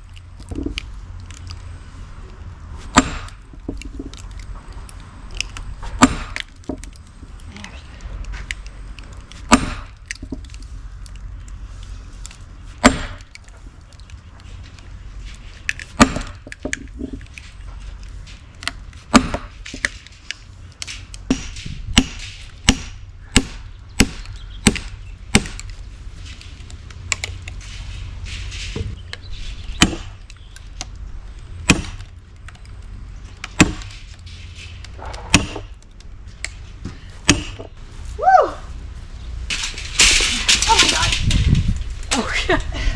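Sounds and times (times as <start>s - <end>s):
axe chopping firewood: 2.8s - 3.5s, 5.8s - 6.9s, 9.4s - 10.4s, 12.8s - 13.4s, 15.8s - 16.8s, 19.0s - 20.0s, 21.2s - 25.7s, 29.7s - 30.3s, 31.6s - 32.1s, 33.4s - 34.1s, 35.0s - 35.8s, 36.8s - 37.8s.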